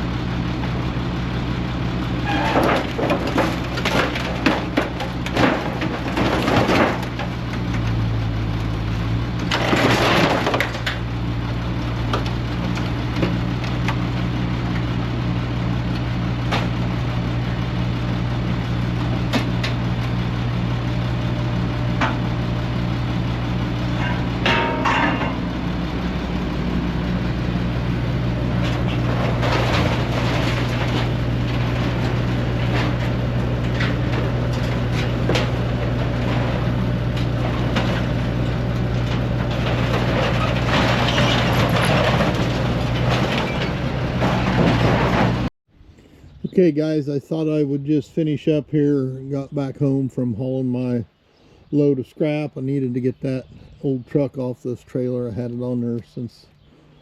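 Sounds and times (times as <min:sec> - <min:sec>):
heavy machine engine running: 0:00.0 - 0:45.5
scrap metal crunching: 0:00.1 - 0:46.1.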